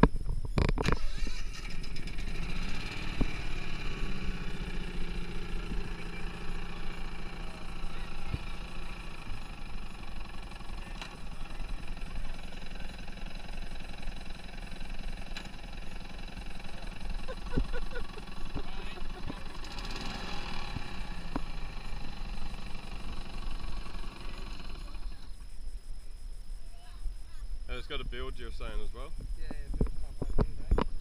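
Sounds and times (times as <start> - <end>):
small boat motor running: 1.2 - 25.4.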